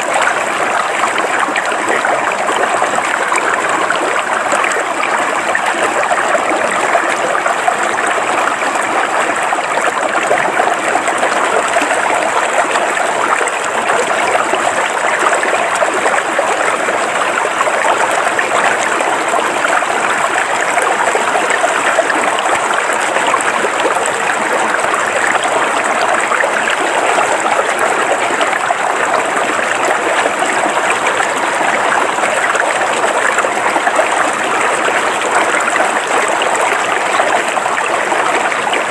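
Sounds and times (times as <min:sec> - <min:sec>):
river water flowing over rocks: 0:00.0 - 0:38.9.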